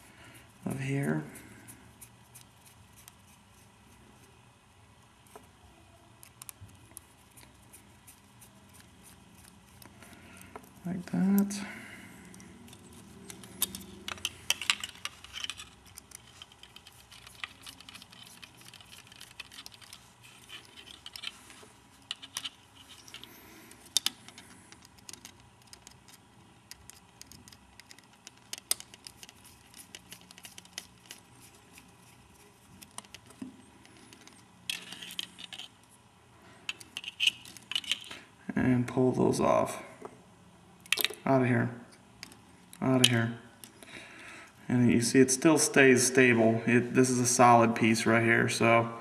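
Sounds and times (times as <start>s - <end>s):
small plastic parts clicking: 6.2s - 10.8s, 12.3s - 35.8s, 36.7s - 38.2s, 40.8s - 41.2s.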